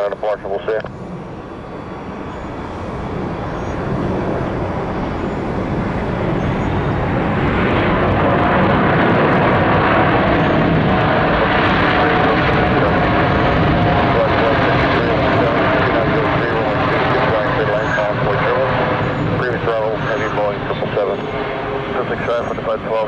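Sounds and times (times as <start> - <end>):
jet engines whining: 1.0 - 18.5.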